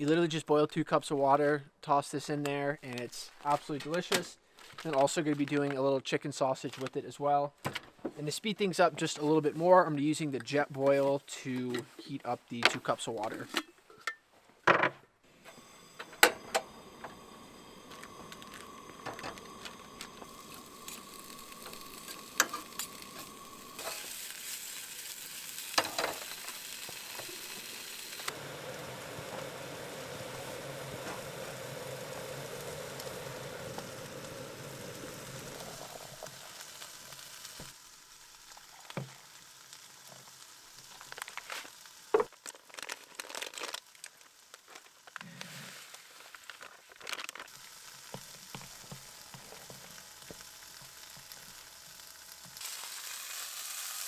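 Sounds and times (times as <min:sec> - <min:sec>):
gas burner hissing: 0:15.3 - 0:37.8, 0:47.6 - 0:54.0
sausage sizzling in a pan: 0:15.4 - 0:46.6, 0:47.4 - 0:54.0.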